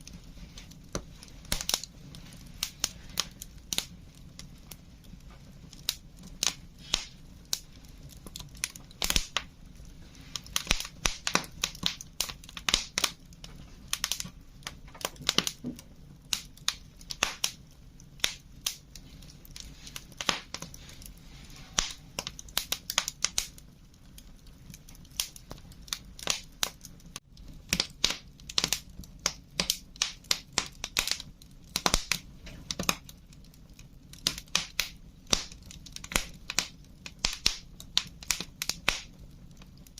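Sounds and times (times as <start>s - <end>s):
low steady hiss: 0.0s - 39.9s
wood fire crackling and popping: 0.0s - 39.9s.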